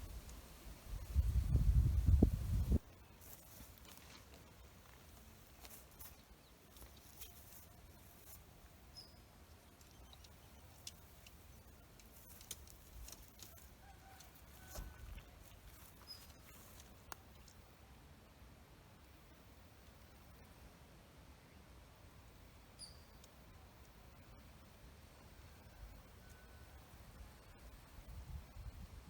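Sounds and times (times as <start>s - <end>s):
faint forest ambience: 0.0s - 29.0s
small clicks and ticks: 9.0s - 17.6s, 23.1s - 24.0s.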